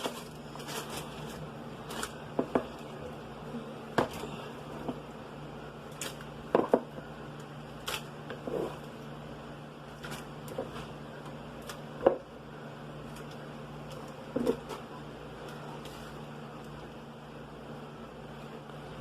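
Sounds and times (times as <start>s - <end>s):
plastic bag rustling: 0.0s - 3.3s.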